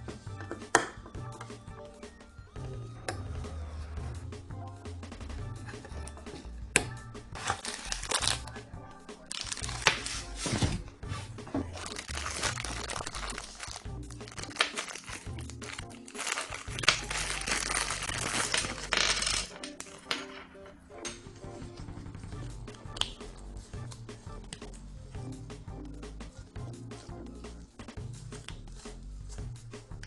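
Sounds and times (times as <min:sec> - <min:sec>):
background music with bass line: 0:00.0 - 0:19.8, 0:21.0 - 0:30.0
scratchy crumpling noise: 0:07.4 - 0:08.5, 0:11.7 - 0:19.5.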